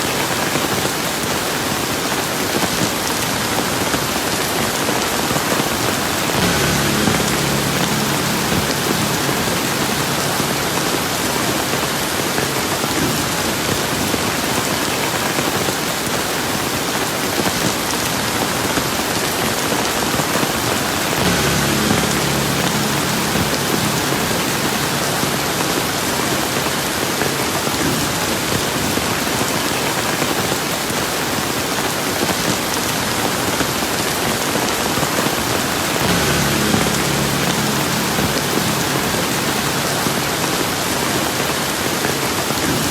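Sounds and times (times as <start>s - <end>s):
steady rain: 0.0s - 42.9s
faint low hum: 5.9s - 13.4s, 21.0s - 28.3s, 35.8s - 42.3s.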